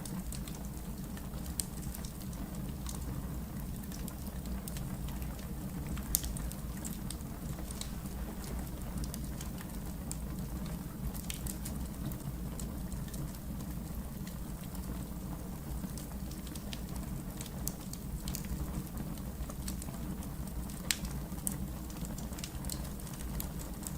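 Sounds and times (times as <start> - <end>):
wood fire crackling: 0.0 - 23.9
sharp pops and snaps: 20.8 - 21.2.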